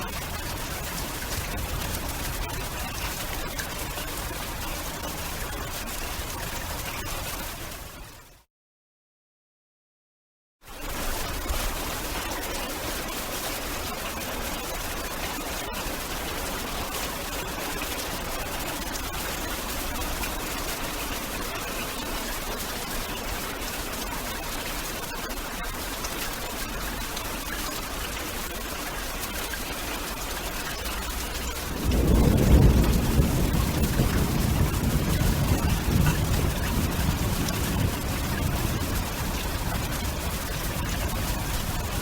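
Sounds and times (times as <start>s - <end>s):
thunder rumbling: 0.0s - 6.5s, 30.8s - 42.0s
heavy rain hissing: 0.0s - 7.0s, 30.1s - 42.0s.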